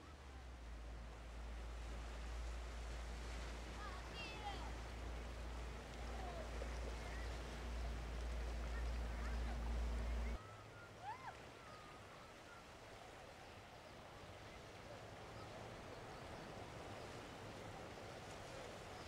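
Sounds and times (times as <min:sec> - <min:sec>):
surf: 0:00.0 - 0:19.0
wind: 0:00.0 - 0:19.0.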